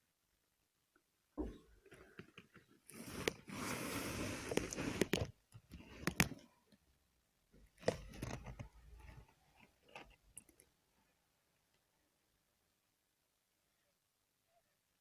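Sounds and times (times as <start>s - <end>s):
handling rustling scrapes: 2.7s - 6.5s.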